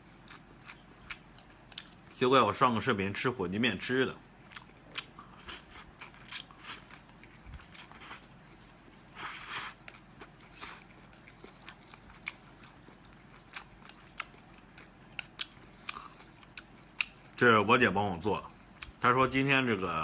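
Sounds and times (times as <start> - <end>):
chewing and mouth clicks: 0.2 - 2.1, 4.5 - 17.4, 18.5 - 19.0.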